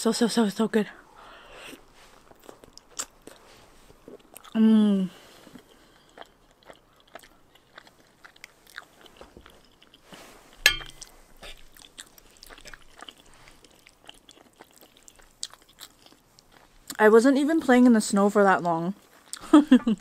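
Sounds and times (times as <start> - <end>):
chewing and wet mouth sounds: 1.6 - 4.6, 5.2 - 18.0, 18.6 - 20.0
fork clinking against metal pan: 10.6 - 11.1.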